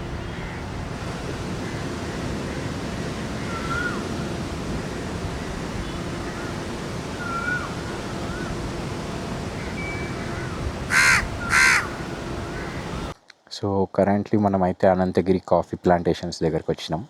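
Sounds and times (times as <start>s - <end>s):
heavy rain falling: 0.0s - 13.1s
crow cawing: 0.3s - 0.7s, 1.5s - 4.1s, 6.2s - 6.5s, 7.2s - 8.5s, 10.2s - 13.0s.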